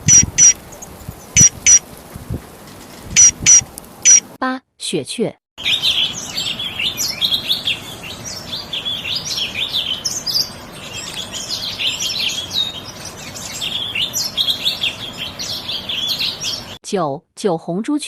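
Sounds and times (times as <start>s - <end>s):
finch twittering chirps and trills: 0.0s - 1.8s, 5.6s - 16.8s.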